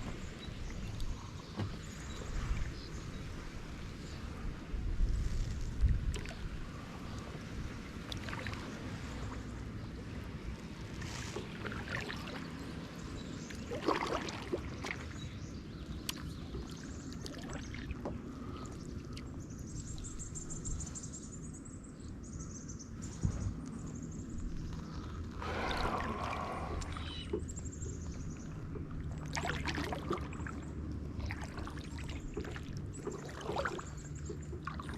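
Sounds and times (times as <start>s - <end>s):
paddle splashing in water: 8.0s - 9.5s, 10.9s - 19.2s, 24.8s - 34.9s
low rumble: 23.1s - 34.9s.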